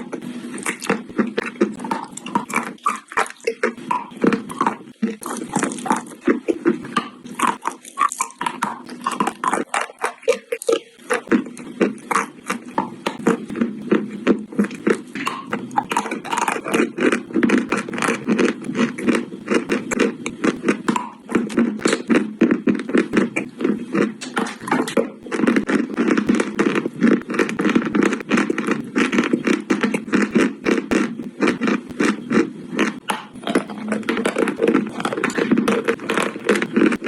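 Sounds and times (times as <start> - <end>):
chewing and crunching chalk: 0.0 - 37.0.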